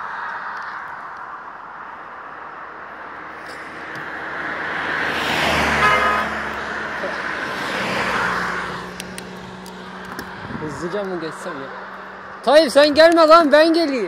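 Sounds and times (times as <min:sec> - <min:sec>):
vehicle passing by: 0:02.1 - 0:13.0.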